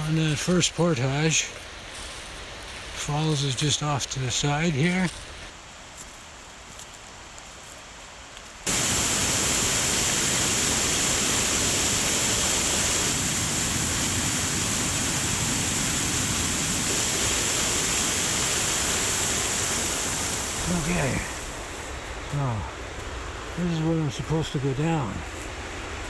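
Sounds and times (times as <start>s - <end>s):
waterfall rushing: 8.7s - 26.0s.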